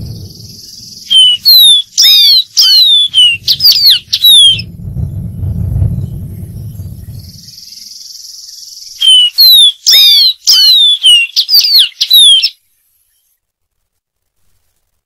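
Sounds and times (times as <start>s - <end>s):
bird singing whistled notes: 0.0s - 5.2s, 5.9s - 13.4s
low rumble: 0.0s - 8.2s.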